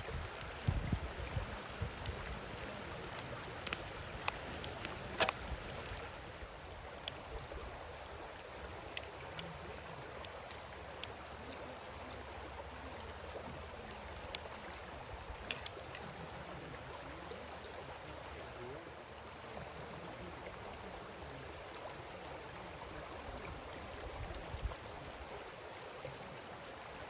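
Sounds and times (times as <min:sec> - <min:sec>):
flowing water rushing: 0:00.0 - 0:27.0
sharp clicks and knocks: 0:03.7 - 0:05.5.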